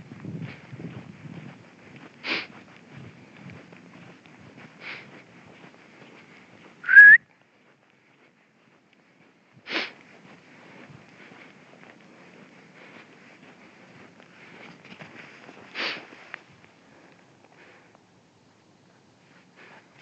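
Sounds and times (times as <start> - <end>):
soft rustling: 0.0 - 6.8, 7.4 - 20.0
person whistling rising note: 6.8 - 7.3.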